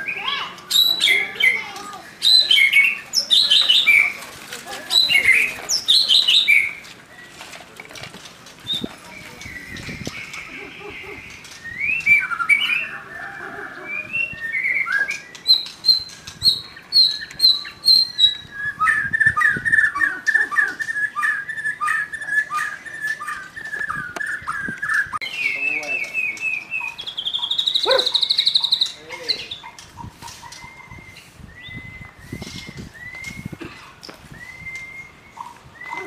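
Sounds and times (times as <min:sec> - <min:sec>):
songbird singing varied song: 0:00.0 - 0:04.2, 0:04.9 - 0:07.4, 0:08.6 - 0:36.0.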